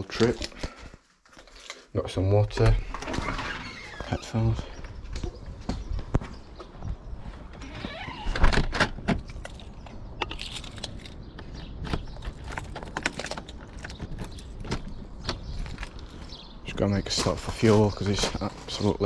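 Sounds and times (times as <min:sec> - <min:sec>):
clicks and rattles of handling: 0:08.6 - 0:16.4.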